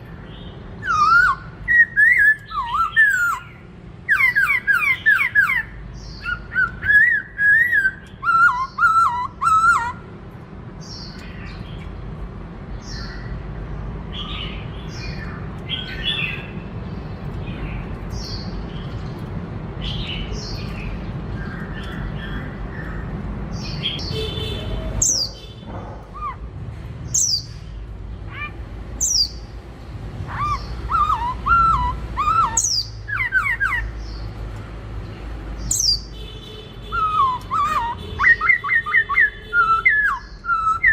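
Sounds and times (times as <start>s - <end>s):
bird singing whistled notes: 0.8s - 10.0s, 27.1s - 27.6s, 28.4s - 29.5s, 30.3s - 34.3s, 35.6s - 36.2s, 36.8s - 40.9s.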